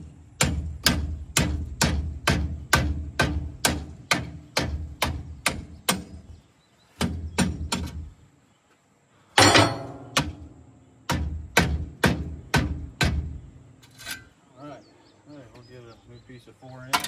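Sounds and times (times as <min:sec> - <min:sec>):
clattering crash: 0:09.4 - 0:10.2
hammer striking metal pipe: 0:09.4 - 0:10.5.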